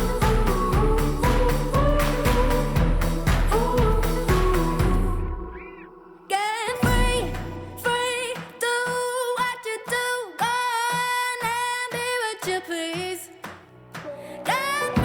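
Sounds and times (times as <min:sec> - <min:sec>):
person singing long notes: 0:00.0 - 0:08.4
background music: 0:00.0 - 0:15.0.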